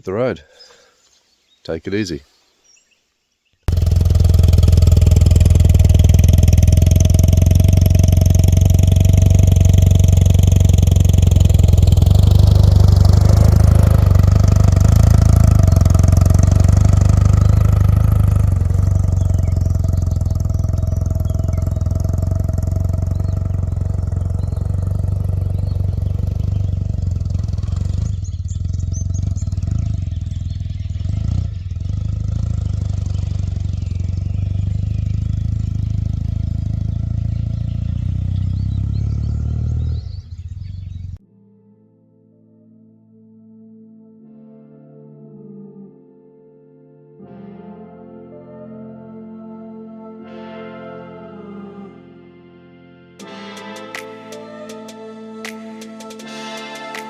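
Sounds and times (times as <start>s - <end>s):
motorcycle engine droning: 3.7s - 41.2s, 53.2s - 57.0s.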